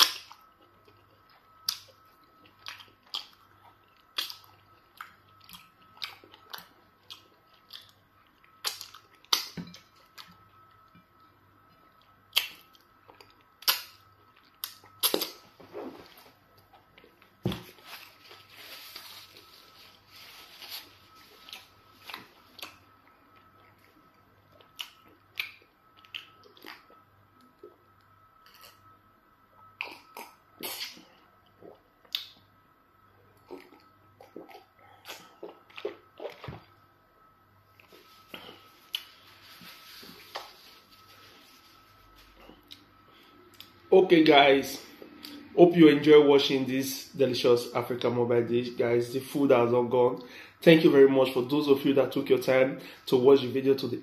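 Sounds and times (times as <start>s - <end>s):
chewing: 0.0s - 10.4s, 21.4s - 27.0s.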